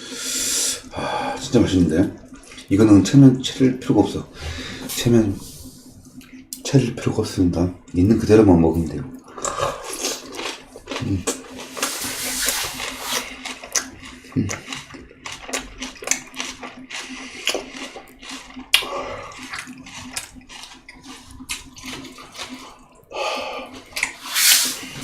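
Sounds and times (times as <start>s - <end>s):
wet chewing and lip smacking: 9.2s - 24.3s.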